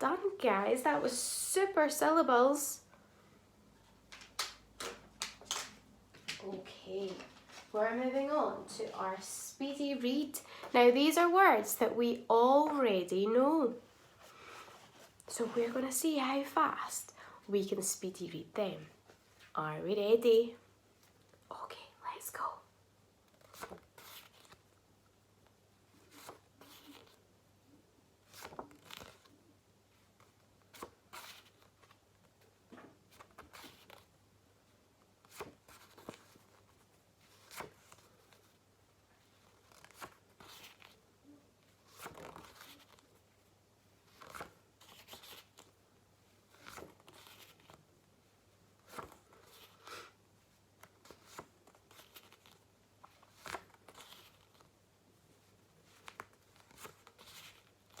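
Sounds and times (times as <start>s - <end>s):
paper flashcards flicking: 4.1s - 6.4s.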